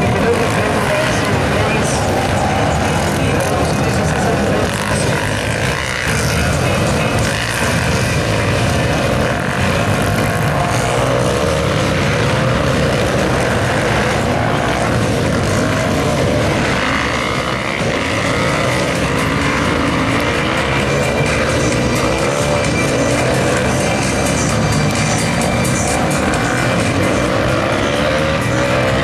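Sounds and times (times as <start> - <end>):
motorcycle engines running hard: 0.0 - 29.0.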